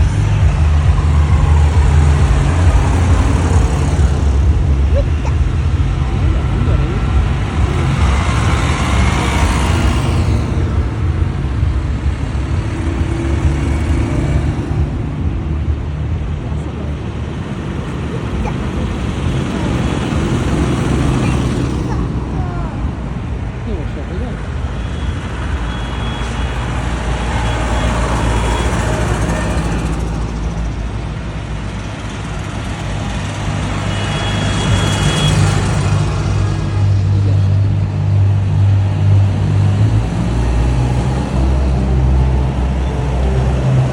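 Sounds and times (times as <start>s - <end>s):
truck driving past: 0.0s - 23.7s, 24.3s - 43.9s
steady low rumble: 0.0s - 24.8s.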